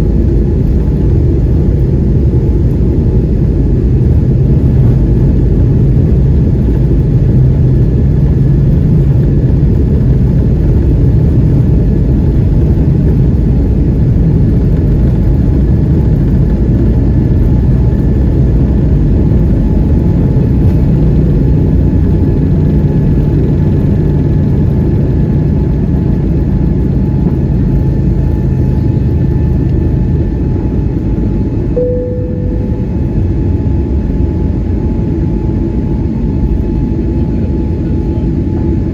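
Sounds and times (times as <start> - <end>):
aircraft cabin engine rumble: 0.0 - 38.9
faint engine whine: 0.0 - 38.9
single tone: 31.8 - 33.5.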